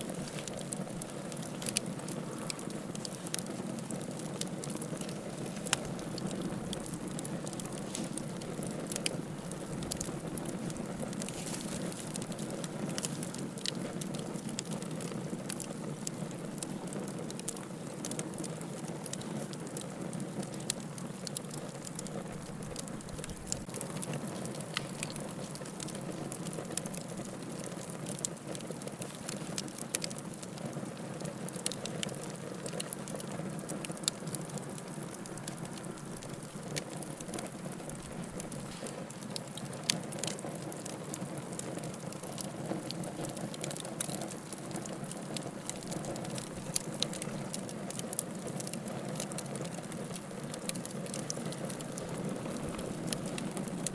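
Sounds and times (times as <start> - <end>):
soft rush of flame: 0.0 - 17.0, 32.0 - 40.3
firewood crackling and popping: 0.0 - 53.9.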